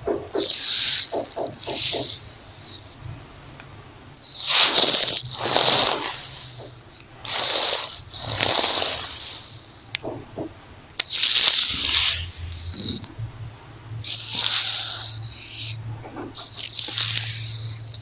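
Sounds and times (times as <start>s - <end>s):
hair tie scratching on microphone: 14.0s - 18.0s.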